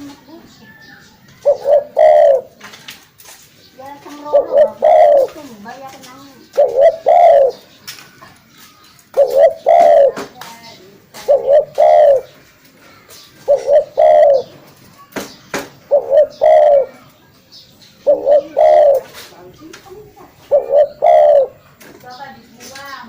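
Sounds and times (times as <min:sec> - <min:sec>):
dove cooing: 0:01.4 - 0:02.6, 0:04.0 - 0:07.7, 0:09.1 - 0:10.4, 0:11.1 - 0:12.4, 0:13.4 - 0:14.6, 0:15.8 - 0:17.1, 0:18.0 - 0:21.8.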